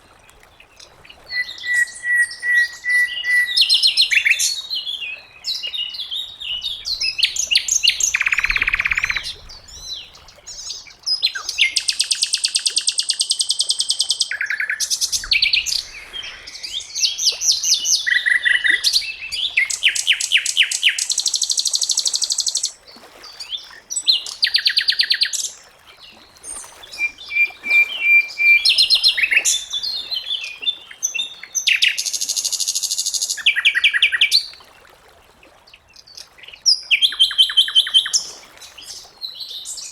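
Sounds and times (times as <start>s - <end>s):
bird singing chirps and whistles: 1.3s - 4.8s, 5.4s - 22.8s, 26.5s - 34.4s, 36.2s - 38.3s
bird fast trills: 26.7s - 29.7s.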